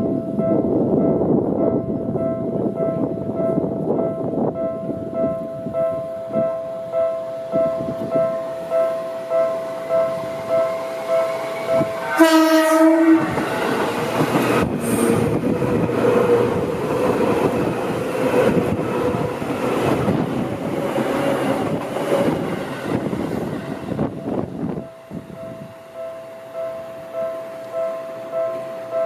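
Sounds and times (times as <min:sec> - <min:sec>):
level crossing warning bell: 0:00.0 - 0:20.1, 0:24.0 - 0:29.0
train horn: 0:08.0 - 0:16.8
train wheels clattering: 0:09.4 - 0:23.6.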